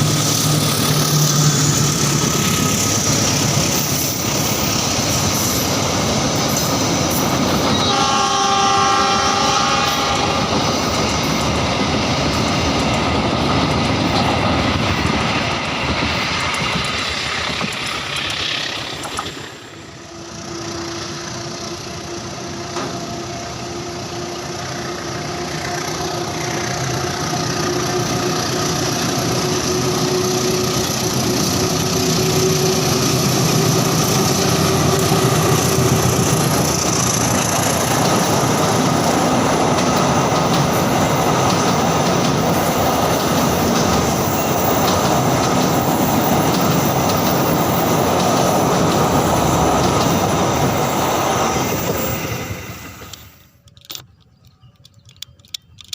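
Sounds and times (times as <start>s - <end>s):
train wheels clattering on rails: 0.0s - 19.5s, 24.6s - 55.9s
train horn: 7.6s - 10.9s, 20.0s - 31.1s.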